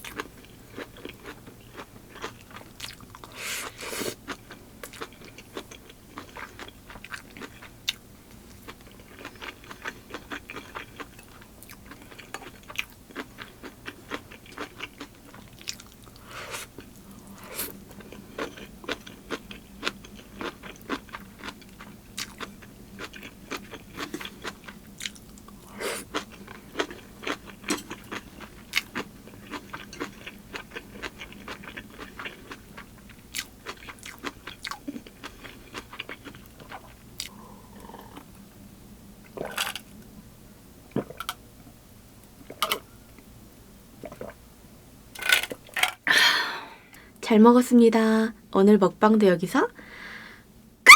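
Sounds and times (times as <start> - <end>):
chewing with crunches: 0.0 - 38.4, 39.2 - 40.0.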